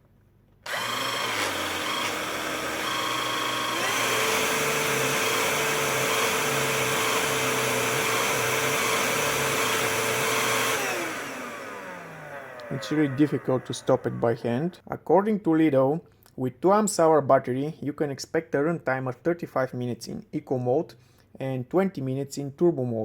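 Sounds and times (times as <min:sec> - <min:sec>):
cordless vacuum cleaner running: 0:00.6 - 0:14.7.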